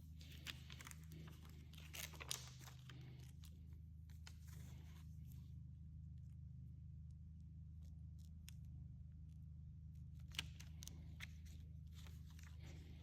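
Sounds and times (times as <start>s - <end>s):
plastic film crinkling: 0.2s - 3.3s.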